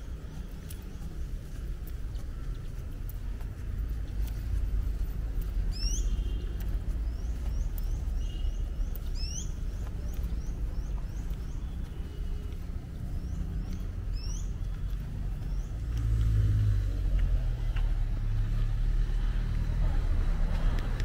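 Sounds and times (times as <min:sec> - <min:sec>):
birds whistling upward: 0:05.7 - 0:06.2, 0:09.2 - 0:09.6.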